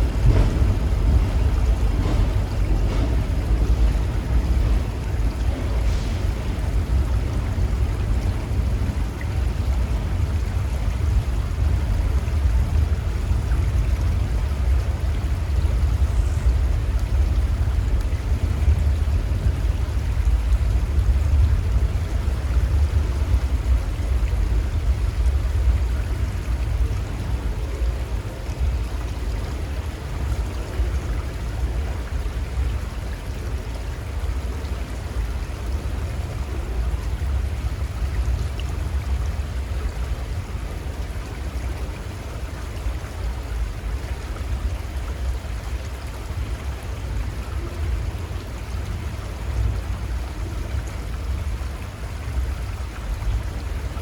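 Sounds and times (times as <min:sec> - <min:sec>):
heavy low rumble: 0:00.0 - 0:44.9
river rushing: 0:00.0 - 0:54.0.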